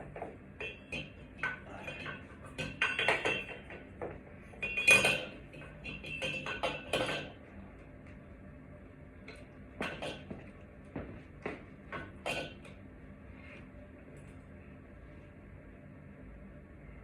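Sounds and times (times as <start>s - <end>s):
metal objects clinking and clattering: 0.6s - 3.8s, 4.6s - 7.4s.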